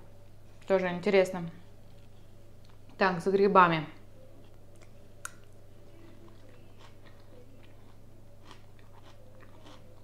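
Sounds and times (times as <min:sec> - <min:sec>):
steady low hum: 0:00.0 - 0:10.0
person chewing: 0:04.4 - 0:10.0.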